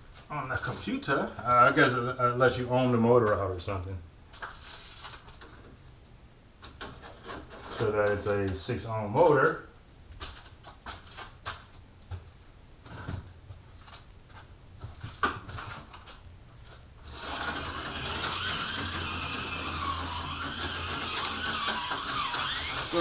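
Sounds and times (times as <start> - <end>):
slot car motor whining: 17.1 - 23.0.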